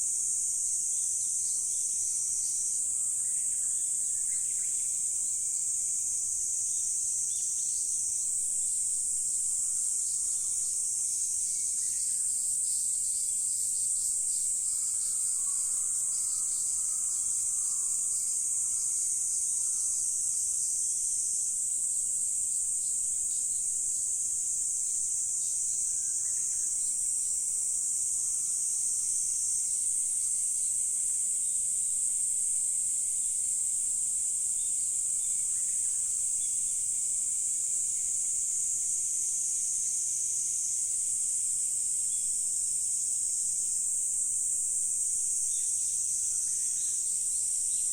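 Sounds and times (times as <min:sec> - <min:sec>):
high-pitched insect chorus: 0:00.0 - 0:47.9.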